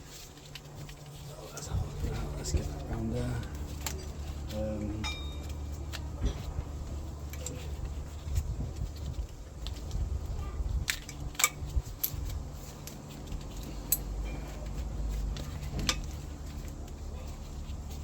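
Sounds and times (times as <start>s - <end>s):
steady low hum: 0.0s - 18.0s
hand tools clicking on engine parts: 10.8s - 17.0s.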